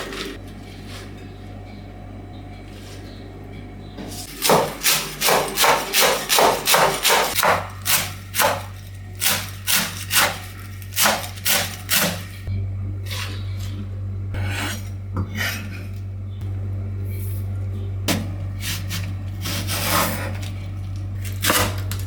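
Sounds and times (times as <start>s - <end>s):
knife chopping on wooden board: 4.3s - 12.2s.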